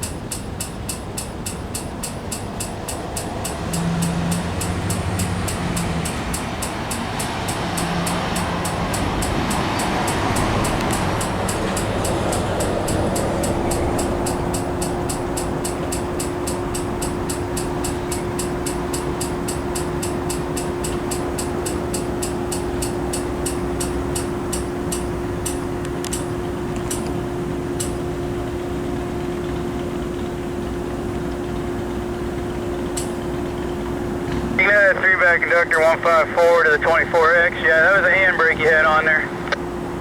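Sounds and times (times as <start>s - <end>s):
train wheels clicking over rail joints: 0.0s - 27.1s.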